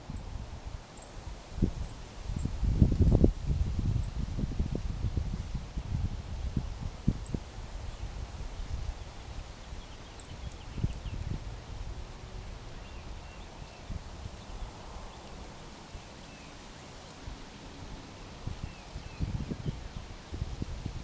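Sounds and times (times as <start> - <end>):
small birds chirping: 9.2 - 12.0.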